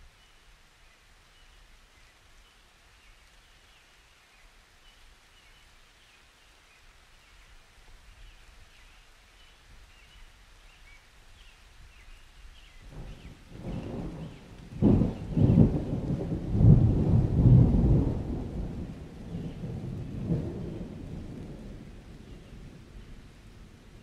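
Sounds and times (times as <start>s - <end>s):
faint rain: 0.0s - 24.0s
thunder rumbling: 12.9s - 24.0s.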